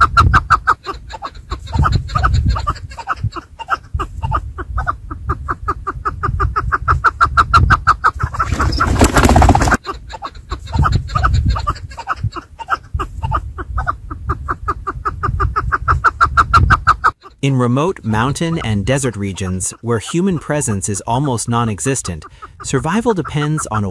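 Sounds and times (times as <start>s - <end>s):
partridges clucking: 8.2s - 9.8s.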